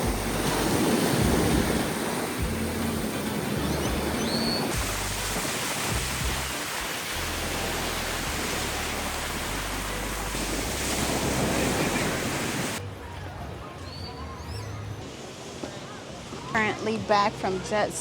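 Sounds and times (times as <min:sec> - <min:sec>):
wind buffeting microphone: 0:00.0 - 0:04.8
surf rushing: 0:00.0 - 0:12.8.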